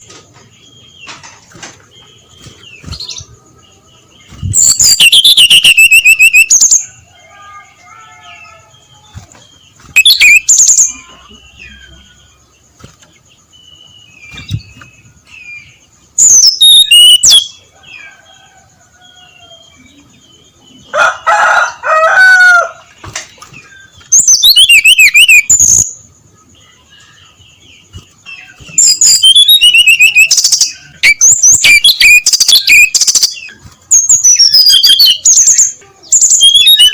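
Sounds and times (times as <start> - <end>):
faint calls of other birds: 0.0 - 36.9
bird high-pitched warbling song: 0.9 - 6.9, 9.8 - 12.4, 13.6 - 17.6, 23.4 - 26.0, 26.6 - 36.9.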